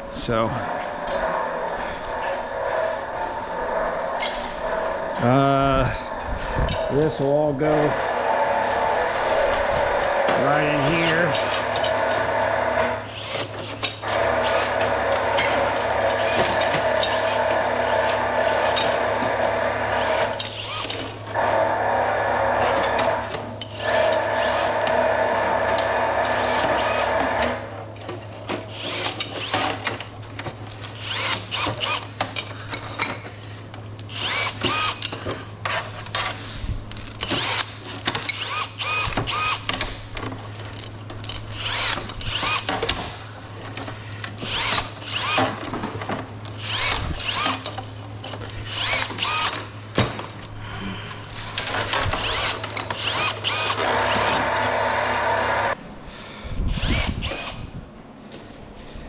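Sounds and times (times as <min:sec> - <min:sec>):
steady low hum: 0:00.0 - 0:28.8
power tool running: 0:00.1 - 0:33.3, 0:34.0 - 0:50.5, 0:51.1 - 0:55.8, 0:56.7 - 0:57.7
scrap metal clanking and rattling: 0:00.2 - 0:21.6.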